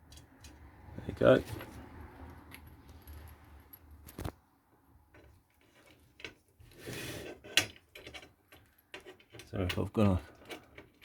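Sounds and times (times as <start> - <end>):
metal parts clicking and knocking: 7.3 - 11.0.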